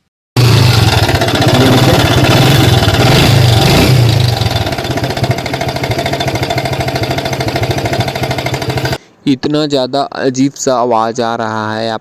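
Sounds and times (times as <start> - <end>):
motorcycle engine running: 0.4 - 9.0
rapid metallic rattle: 0.4 - 9.0.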